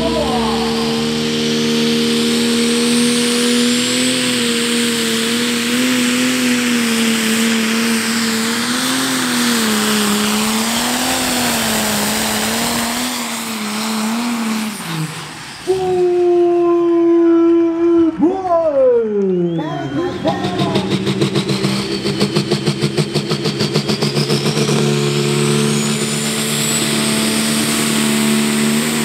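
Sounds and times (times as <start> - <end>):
diesel tractor engine at full revs: 0.0 - 16.2, 19.5 - 29.0
turbo and exhaust rush: 0.0 - 29.0.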